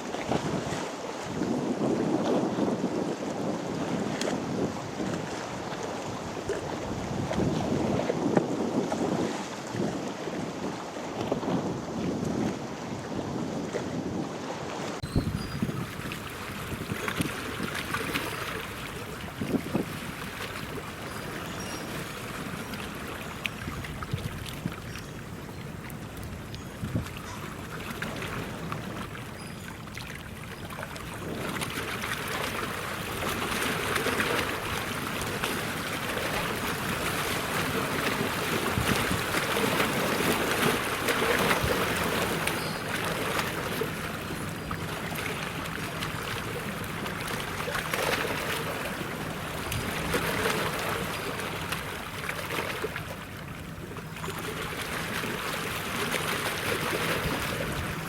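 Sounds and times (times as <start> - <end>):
water washing and splashing: 30.8 - 58.0.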